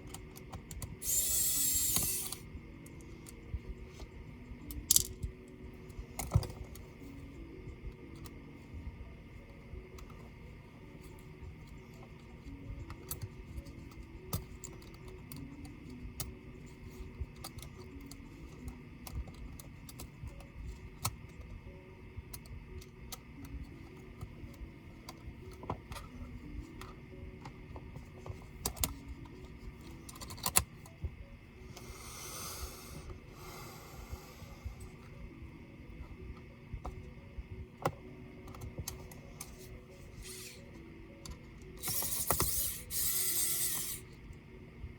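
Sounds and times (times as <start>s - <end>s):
faint background music: 0.0s - 44.9s
tool clicks on laptop parts: 28.2s - 31.0s, 41.2s - 44.0s.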